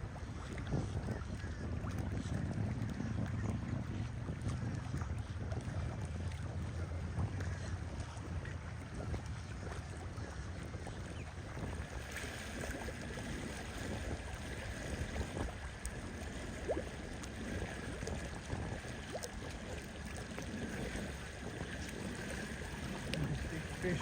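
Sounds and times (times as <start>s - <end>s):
lake water washing: 0.0s - 24.0s
wind buffeting microphone: 0.0s - 24.0s.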